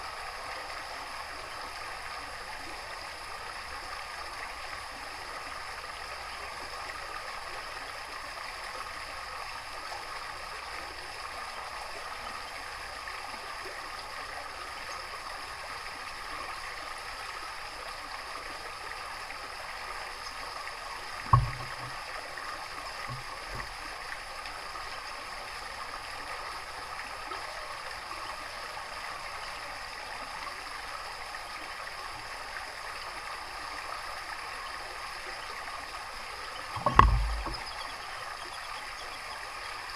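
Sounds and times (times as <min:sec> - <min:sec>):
running water rushing: 0:00.0 - 0:39.9
sharp low thump: 0:21.3 - 0:21.9, 0:36.8 - 0:37.8
faint knocks: 0:21.3 - 0:22.0, 0:23.0 - 0:23.7, 0:36.6 - 0:37.9.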